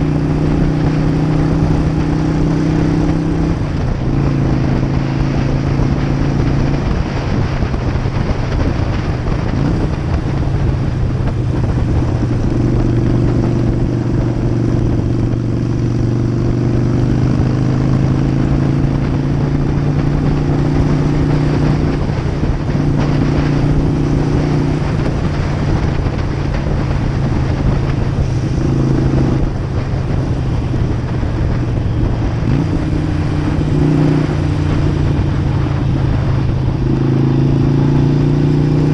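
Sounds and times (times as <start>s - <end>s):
motorcycle engine cruising: 0.0s - 38.9s
wind and road noise: 0.0s - 38.9s.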